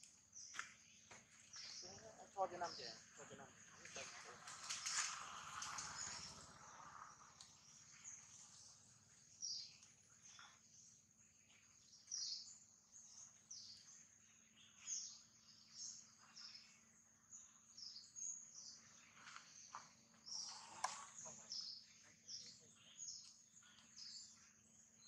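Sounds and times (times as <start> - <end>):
small birds chirping faintly: 0.0 - 25.0.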